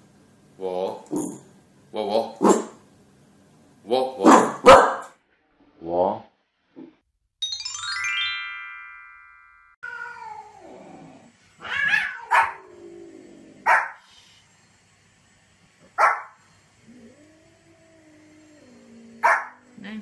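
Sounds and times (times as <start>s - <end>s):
small dog barking: 4.2s - 5.1s, 11.7s - 12.6s, 13.6s - 14.0s, 16.0s - 16.4s, 19.2s - 19.6s
rising chime jingle: 7.4s - 9.8s
cat meowing: 9.8s - 10.7s, 11.6s - 12.6s.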